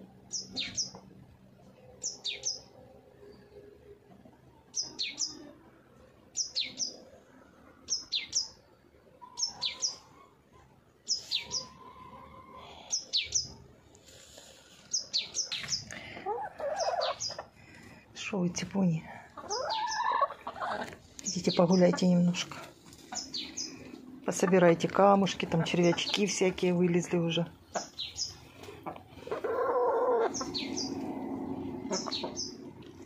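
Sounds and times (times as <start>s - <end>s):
small bird calling: 11.1s - 13.5s, 14.9s - 17.5s, 19.4s - 24.5s, 27.6s - 32.8s.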